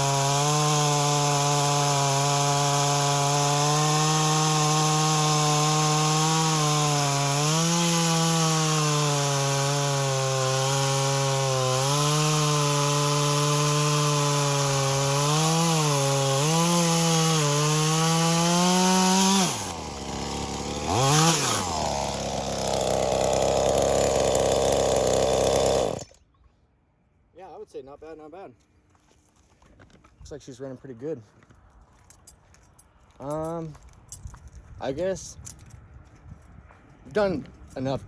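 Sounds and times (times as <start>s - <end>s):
chainsaw cutting wood: 0.0s - 26.2s
chainsaw idling: 0.0s - 26.2s.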